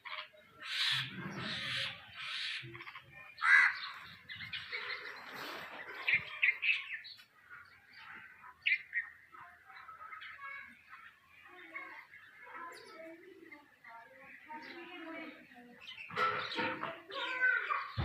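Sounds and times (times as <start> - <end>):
birds calling harshly: 0.0 - 18.0.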